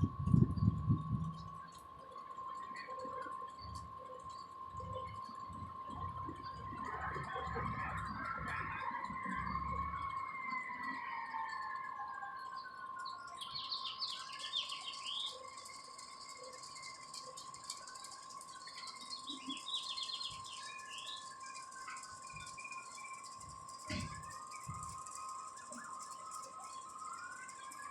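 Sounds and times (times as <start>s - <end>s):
distant airplane whine: 0.0s - 27.9s
birds chirping: 12.4s - 27.9s.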